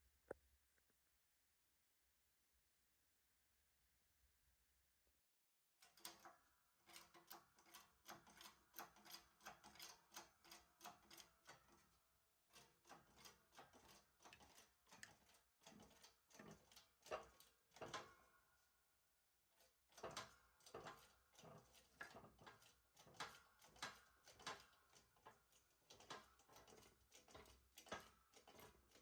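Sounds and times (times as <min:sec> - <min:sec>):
metallic clicks and clanks: 0:19.9 - 0:29.0.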